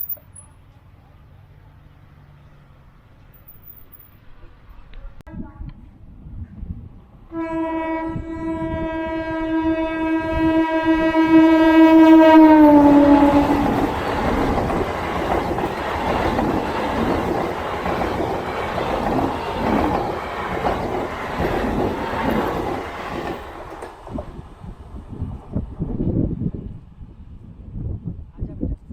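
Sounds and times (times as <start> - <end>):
train horn blast: 7.3 - 13.9
train coaches clattering over track: 12.8 - 24.6.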